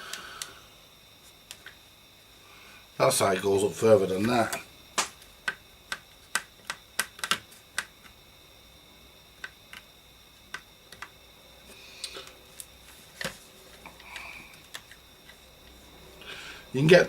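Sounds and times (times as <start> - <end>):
radio chassis clicks and knocks: 4.2 - 8.2.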